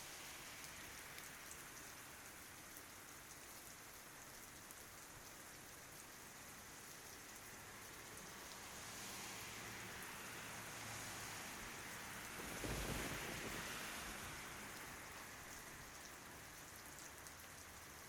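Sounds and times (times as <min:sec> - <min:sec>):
rain falling on leaves: 0:00.0 - 0:18.0.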